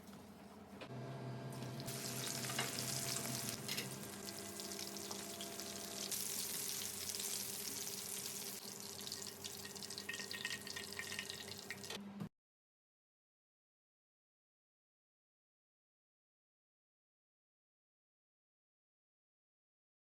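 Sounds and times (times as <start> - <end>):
food sizzling in hot oil: 1.6 - 11.9.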